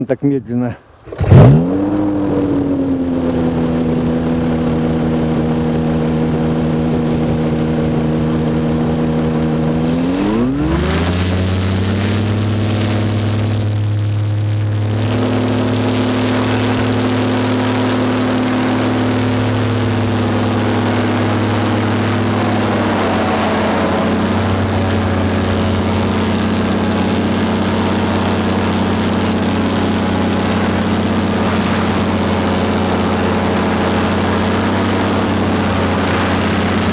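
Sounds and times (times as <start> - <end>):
paramotor engine and propeller: 1.0 - 36.9.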